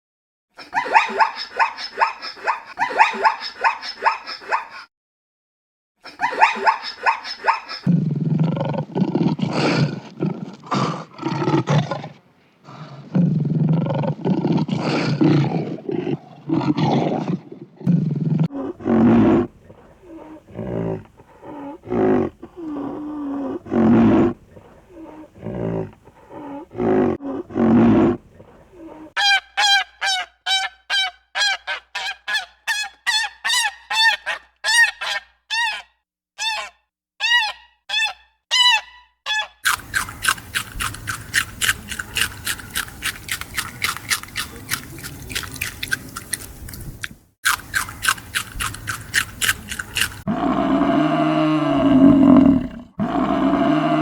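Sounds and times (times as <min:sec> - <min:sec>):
deep rough animal calls: 0:47.7 - 0:54.0.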